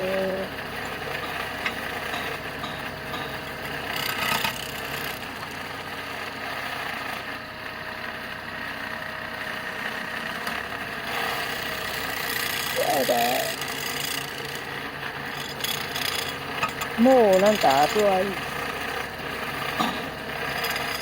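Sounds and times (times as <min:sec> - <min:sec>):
drive belt tensioner rattling: 0:00.0 - 0:05.4
car engine idling: 0:00.0 - 0:06.5.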